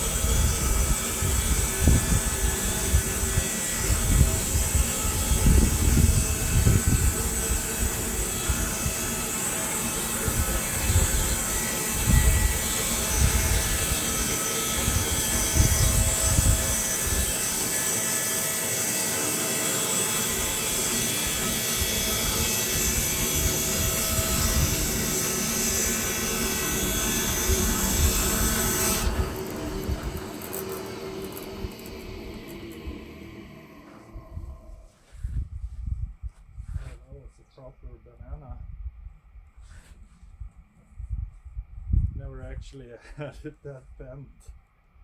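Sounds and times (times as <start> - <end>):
saw blade hissing through log: 0.0 - 34.2
sawmill engine drone: 0.0 - 35.4.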